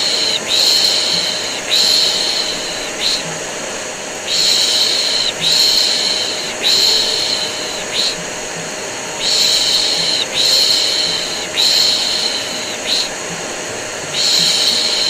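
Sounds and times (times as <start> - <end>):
vacuum cleaner hum: 0.0 - 15.0
person shushing: 4.3 - 8.3.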